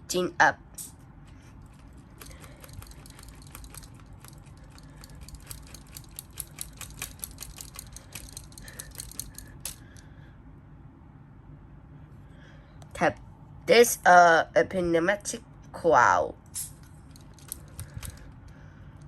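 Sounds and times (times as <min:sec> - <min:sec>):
plastic parts clicking and rattling: 0:01.2 - 0:10.0, 0:16.7 - 0:19.0.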